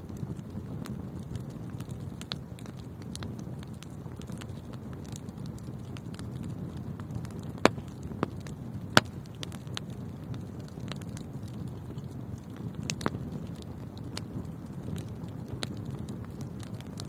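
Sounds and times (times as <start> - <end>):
low rumble of flames: 0.0 - 17.0
small fire crackles: 0.0 - 17.0.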